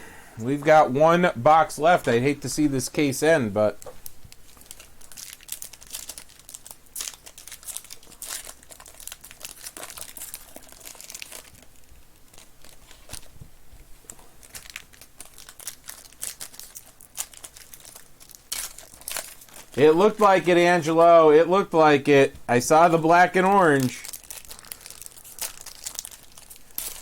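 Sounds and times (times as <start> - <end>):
plastic wrapping crinkling and tearing: 3.8 - 13.4, 14.0 - 21.2, 22.8 - 27.0.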